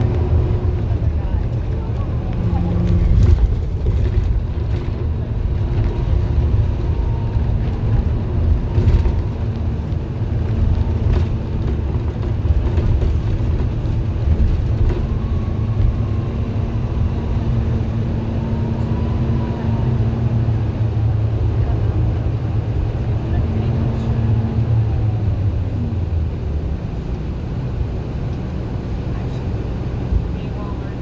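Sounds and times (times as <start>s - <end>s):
bus engine running: 0.0s - 31.0s
radiator fan drone: 0.0s - 31.0s.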